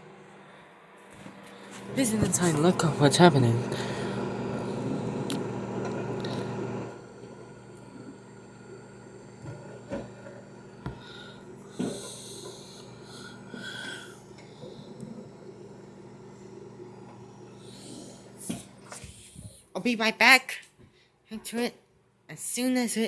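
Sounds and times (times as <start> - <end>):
microwave oven humming: 0.0 - 19.6
handling knocks and rubbing: 1.3 - 2.9.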